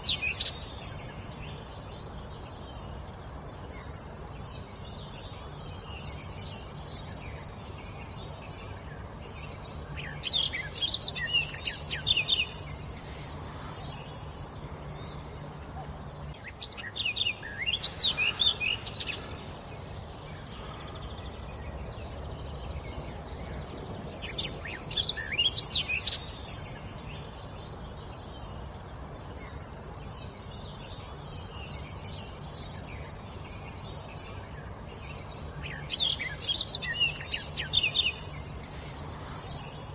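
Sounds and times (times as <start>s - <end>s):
faint low hum: 0.0s - 39.9s
songbird chirping: 0.0s - 39.9s.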